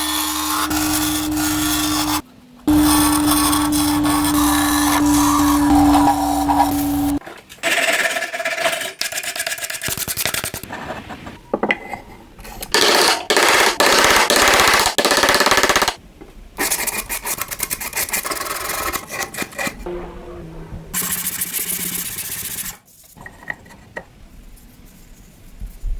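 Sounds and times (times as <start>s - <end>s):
power tool humming: 0.0s - 7.2s
scraping on a cheese grater: 0.0s - 7.2s.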